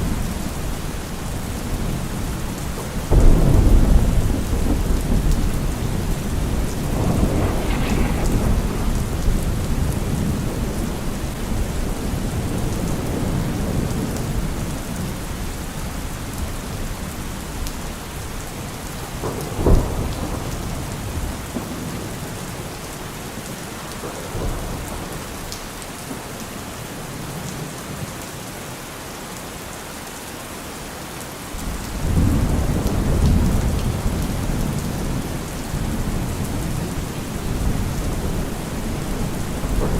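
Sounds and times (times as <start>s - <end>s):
rolling thunder rumble: 0.0s - 25.6s, 31.6s - 39.9s
heavy rain falling: 0.0s - 39.9s
sharp thunderclap: 2.7s - 14.6s, 19.1s - 22.4s, 31.9s - 39.9s.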